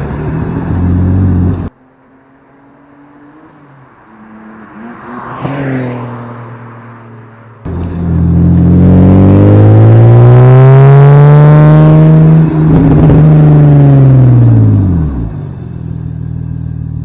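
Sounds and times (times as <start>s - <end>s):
faint engine note: 7.7s - 10.1s
loud car exhaust revving: 7.7s - 17.0s.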